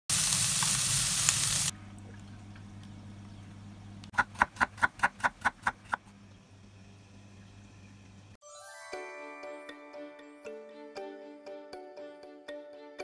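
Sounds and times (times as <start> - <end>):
vegetables sizzling in frying pan: 0.1 - 1.7.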